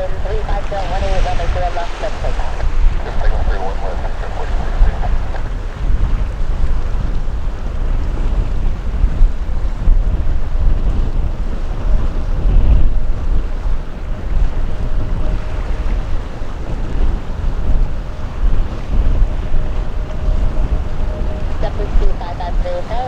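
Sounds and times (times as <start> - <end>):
faint steady hum: 0.0 - 6.5, 12.4 - 23.0
wind buffeting microphone: 0.0 - 23.0.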